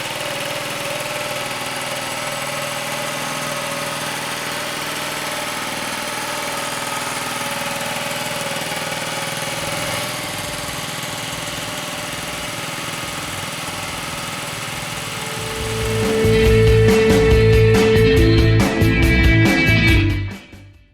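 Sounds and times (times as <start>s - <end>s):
minibike engine idling: 0.0s - 20.1s
music: 15.3s - 20.9s.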